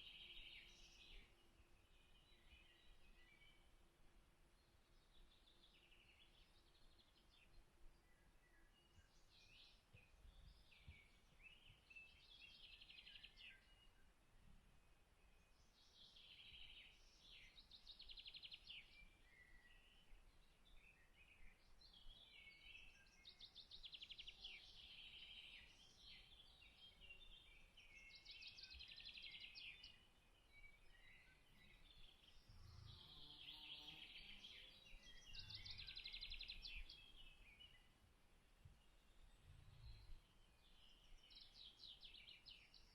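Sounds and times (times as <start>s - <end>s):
faint songbird trills: 15.4s - 38.0s, 38.8s - 42.9s.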